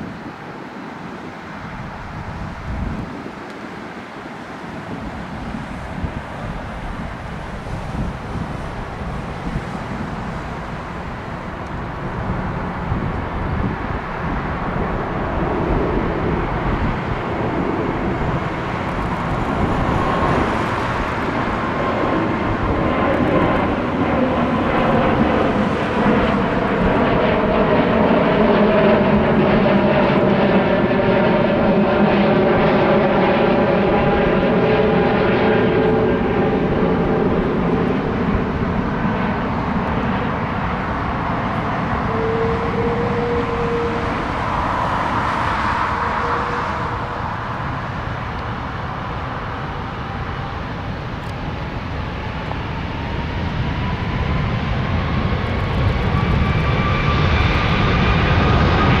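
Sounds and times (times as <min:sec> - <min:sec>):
jet airliner passing: 0:00.0 - 0:59.0.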